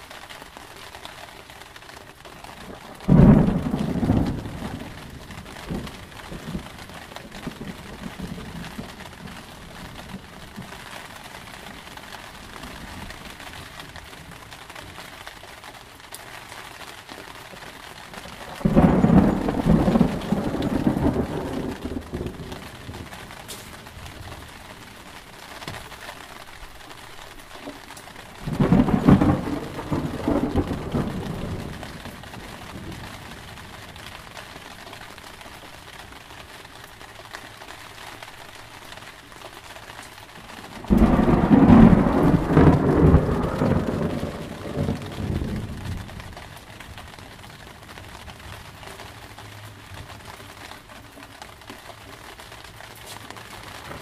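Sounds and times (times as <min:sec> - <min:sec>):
steady rain: 0:00.0 - 0:54.0
thunder rumbling: 0:02.5 - 0:15.1, 0:17.7 - 0:26.0, 0:27.8 - 0:35.4, 0:40.5 - 0:49.2, 0:53.4 - 0:54.0.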